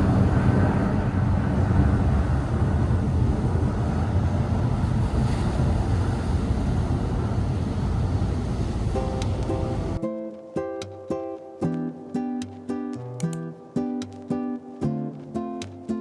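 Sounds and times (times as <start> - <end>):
wind rumbling on microphone: 0.0 - 10.0
sea surf: 0.0 - 16.0
plucked ukulele tune: 8.8 - 16.0.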